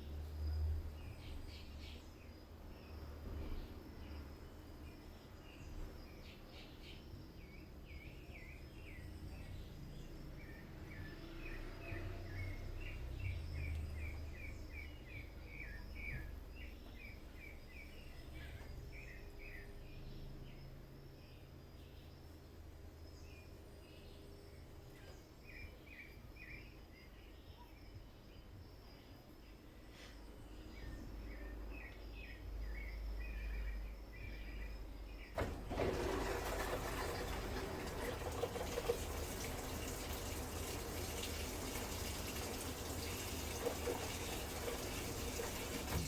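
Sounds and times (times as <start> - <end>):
small bird chirping: 0.0 - 35.4
washing machine rumbling: 34.2 - 46.0.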